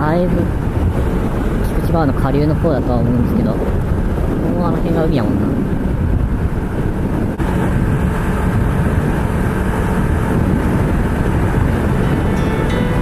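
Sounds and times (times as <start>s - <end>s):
wind rushing over microphone: 0.0s - 13.0s
motorcycle engine running: 5.4s - 13.0s.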